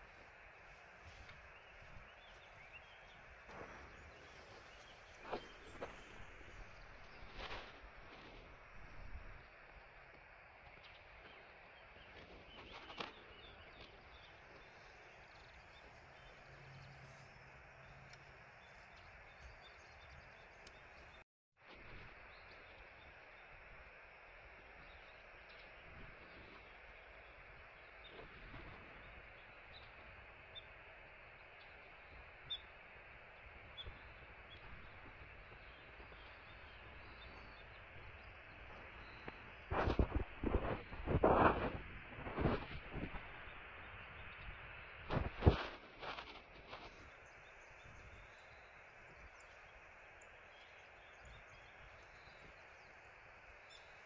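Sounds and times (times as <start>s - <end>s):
faint outdoor hiss: 0.0s - 54.0s
small bird chirping: 24.8s - 41.8s.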